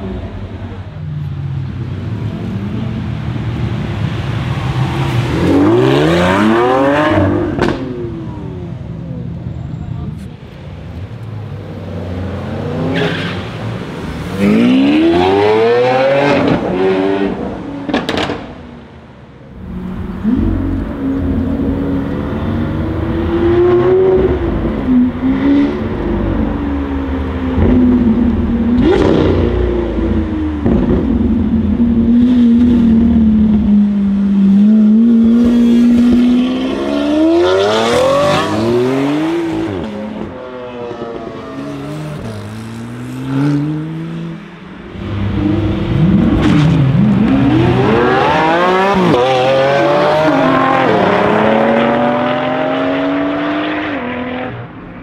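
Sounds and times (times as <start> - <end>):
car engine revving: 19.5 - 40.3, 41.1 - 55.0.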